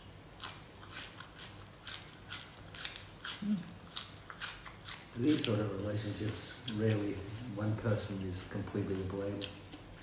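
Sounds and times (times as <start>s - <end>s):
crunchy chewing of vegetables: 0.1s - 6.9s.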